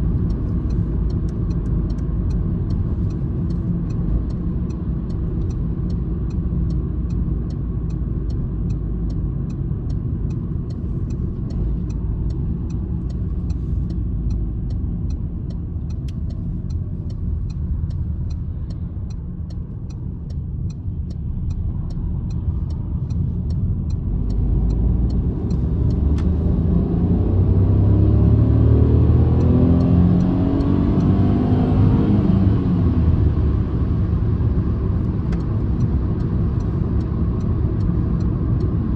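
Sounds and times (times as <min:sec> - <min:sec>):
faint regular ticking: 0:00.0 - 0:26.6, 0:35.0 - 0:38.9
car engine and road noise: 0:00.0 - 0:38.9.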